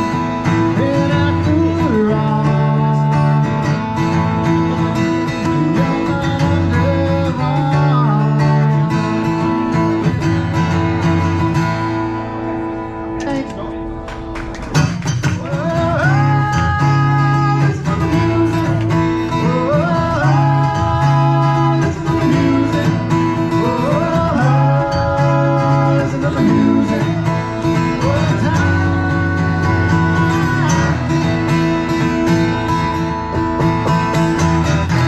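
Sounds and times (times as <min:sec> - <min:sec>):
acoustic guitar melody: 0:00.0 - 0:35.0
repeating bass pattern: 0:30.0 - 0:35.0.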